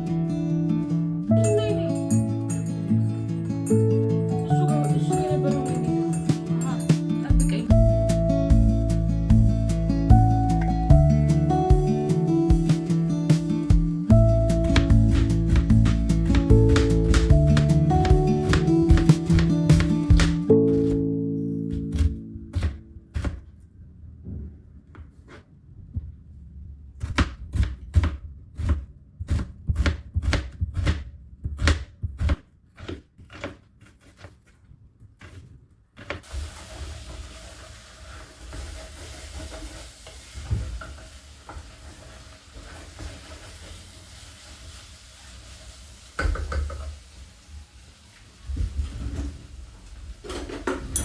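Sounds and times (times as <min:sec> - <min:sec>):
knife chopping on cutting board: 0:14.5 - 0:21.0, 0:21.7 - 0:23.4, 0:27.0 - 0:34.4
food sizzling in a pan: 0:36.2 - 0:48.7.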